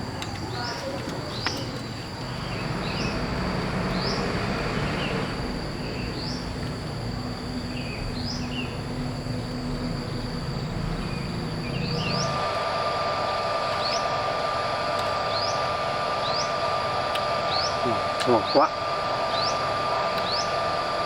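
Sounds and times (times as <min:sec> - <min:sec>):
high-pitched insect drone: 0:00.0 - 0:21.0
low hum: 0:00.0 - 0:21.0
rising bird chirps: 0:00.6 - 0:06.6, 0:07.5 - 0:12.5, 0:15.2 - 0:21.0
rushing noise: 0:02.0 - 0:21.0.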